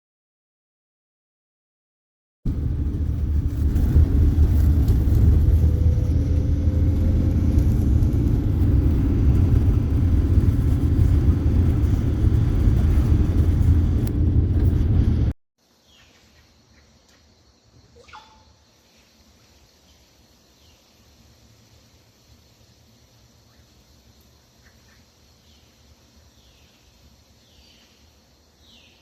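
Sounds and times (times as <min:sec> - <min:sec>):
motor low rumble: 0:02.5 - 0:15.4
faint bird chirps: 0:15.8 - 0:21.1, 0:23.1 - 0:29.0.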